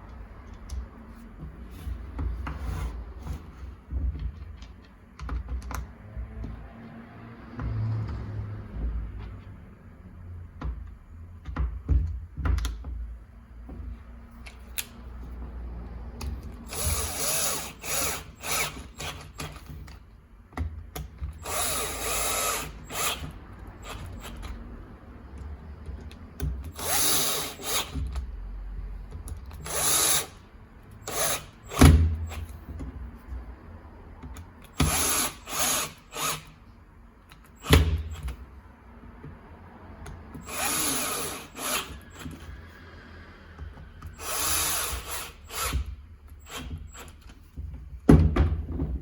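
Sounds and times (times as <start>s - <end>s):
hammer drill running: 16.7s - 19.3s, 21.4s - 24.4s, 26.8s - 28.0s, 29.6s - 30.4s, 31.0s - 31.9s, 34.8s - 36.5s, 40.4s - 42.5s, 44.1s - 47.1s.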